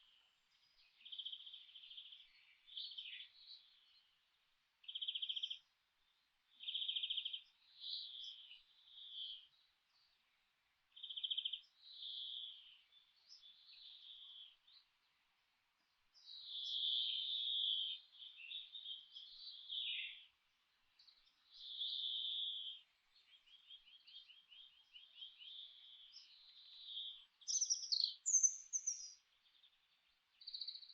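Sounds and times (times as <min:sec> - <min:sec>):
songbirds singing: 0:00.0 - 0:30.9.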